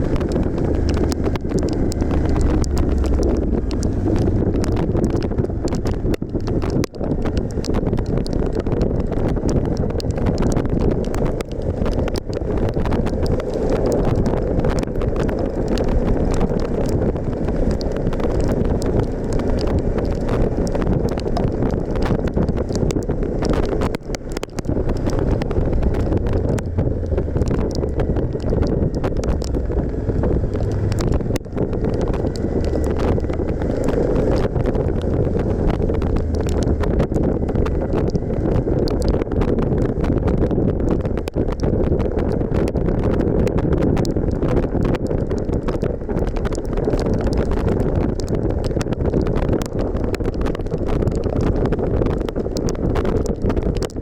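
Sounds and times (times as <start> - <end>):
motorcycle engine running: 0.0 - 6.8, 24.1 - 38.3
tyres on road: 0.0 - 54.0
wind buffeting microphone: 0.0 - 54.0.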